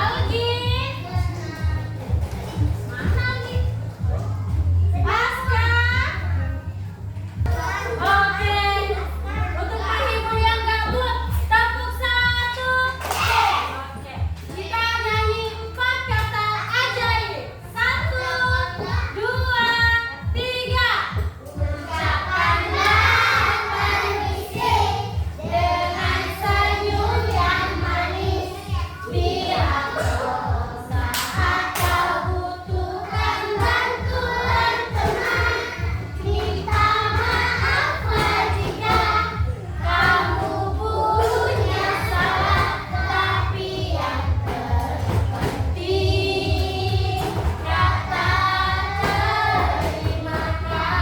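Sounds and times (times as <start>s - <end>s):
children singing together: 18.0s - 19.7s, 21.6s - 51.0s
steady beat: 21.1s - 51.0s.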